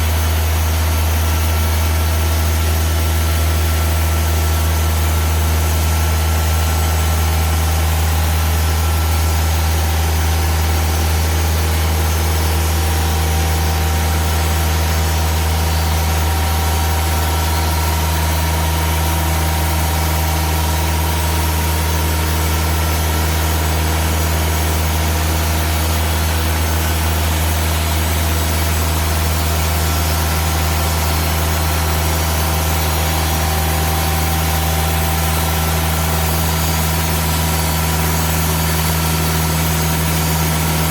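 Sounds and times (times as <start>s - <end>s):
sawmill engine humming: 0.0s - 40.9s.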